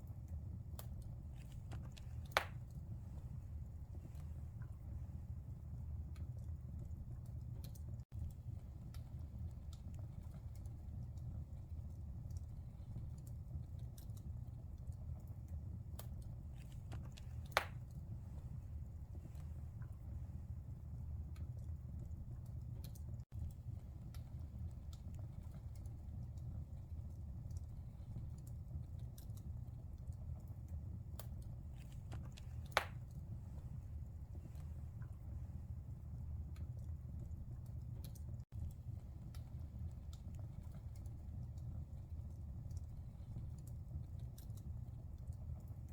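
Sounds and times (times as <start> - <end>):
fire crackling and popping: 0.0 - 45.9
wood fire burning: 0.0 - 45.9.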